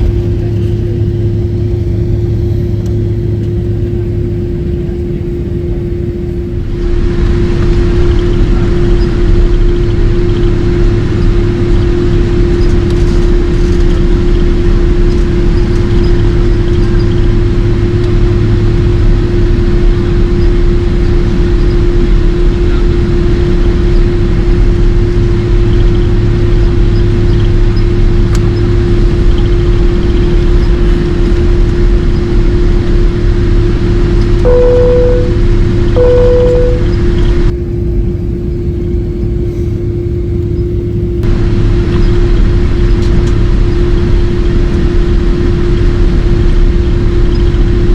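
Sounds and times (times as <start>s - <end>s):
jet engines roaring: 0.0s - 37.5s.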